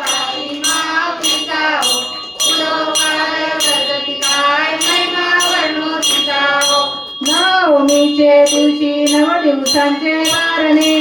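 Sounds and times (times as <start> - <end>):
jingling cymbal strikes: 0.0 - 11.0.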